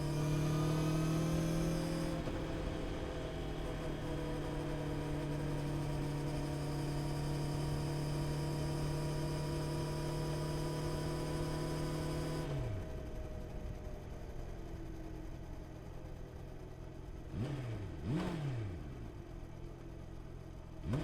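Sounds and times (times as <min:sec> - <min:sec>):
motorcycle engine cruising: 0:00.0 - 0:08.4.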